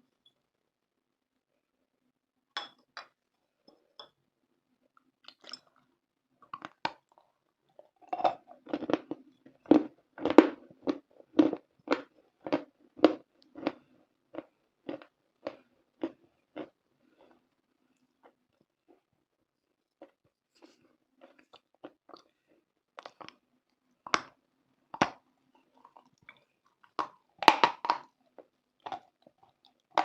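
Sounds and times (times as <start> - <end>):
chewing crunchy food: 5.2 - 19.2, 19.9 - 23.4, 25.0 - 30.0.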